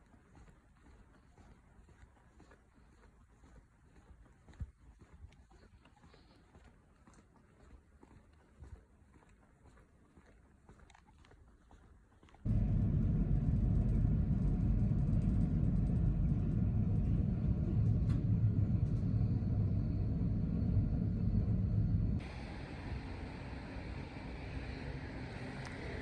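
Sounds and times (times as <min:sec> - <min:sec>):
steady low rumble: 0:12.4 - 0:26.0.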